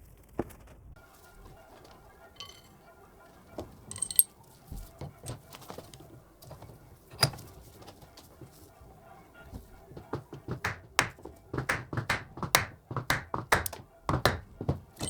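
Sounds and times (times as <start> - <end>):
sharp ringing clink: 3.9 - 4.3.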